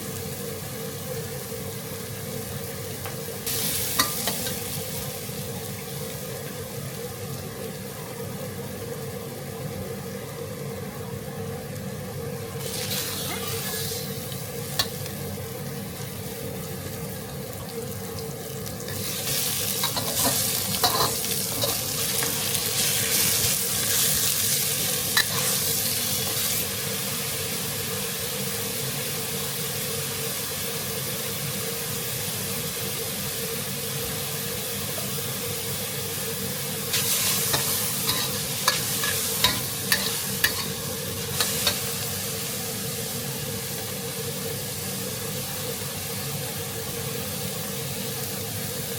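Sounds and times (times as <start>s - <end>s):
food sizzling in a pan: 0.0s - 48.9s
spatula scraping a pan: 19.8s - 23.2s, 36.9s - 41.9s.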